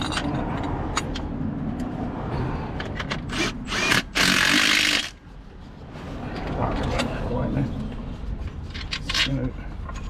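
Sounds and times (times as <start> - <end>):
hand-held power tool bursts: 3.3 - 5.2.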